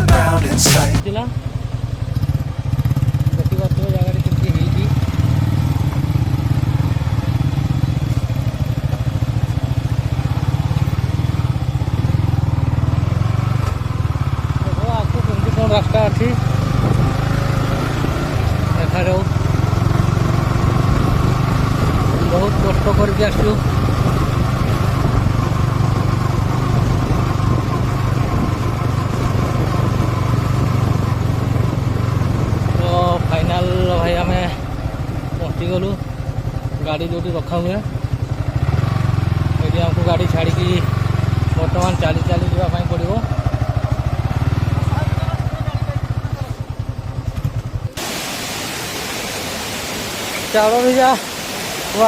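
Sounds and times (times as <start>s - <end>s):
road and wind noise: 0.0s - 52.0s
motorcycle engine rumbling: 31.2s - 48.0s.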